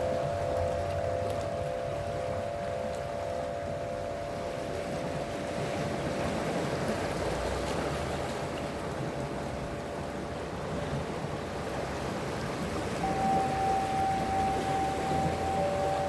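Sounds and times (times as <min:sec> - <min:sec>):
steady tonal hum: 0:00.0 - 0:07.0, 0:13.0 - 0:16.0
waves washing on shore: 0:00.0 - 0:16.0.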